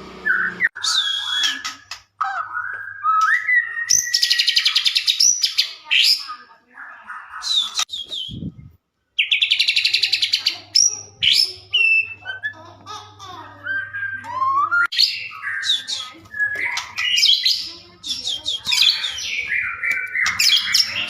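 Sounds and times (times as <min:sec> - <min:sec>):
songbird whistling and trilling: 0:00.2 - 0:06.2, 0:07.4 - 0:08.6, 0:10.8 - 0:12.6, 0:13.6 - 0:21.0.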